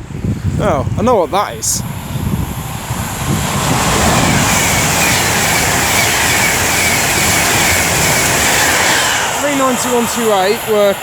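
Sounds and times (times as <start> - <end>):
train passing at speed: 0.0 - 11.0.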